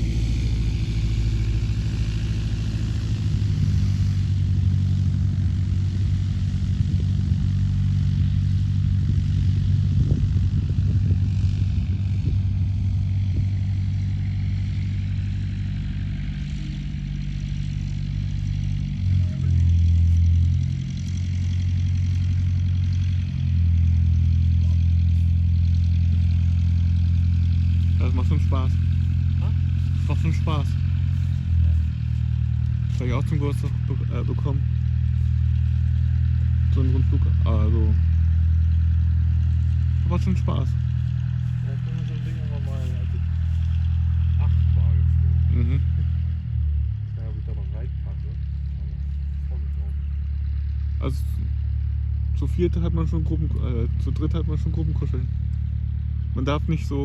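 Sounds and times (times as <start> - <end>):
piston engine running: 0.0 - 57.0.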